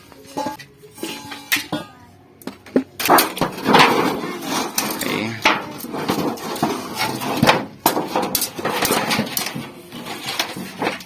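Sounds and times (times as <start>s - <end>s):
background voices: 4.0s - 6.4s.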